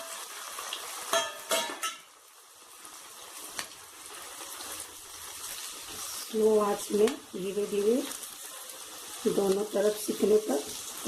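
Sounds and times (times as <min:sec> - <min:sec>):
hot oil sizzling: 0:00.0 - 0:11.0
metal utensil clinking on pan: 0:01.1 - 0:02.1.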